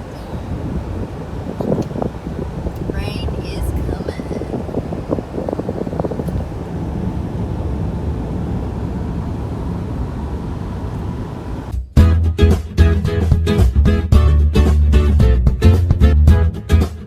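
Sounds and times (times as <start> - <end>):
low rumbling noise: 0.0 - 11.8.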